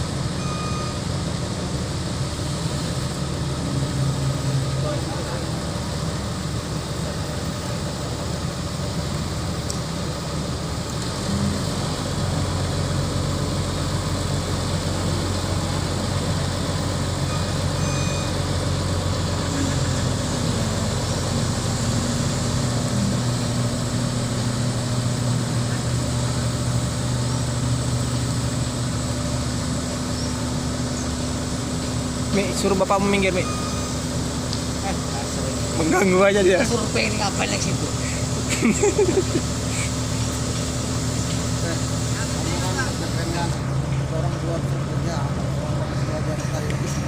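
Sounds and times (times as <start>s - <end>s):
crane diesel engine humming: 0.0s - 47.0s.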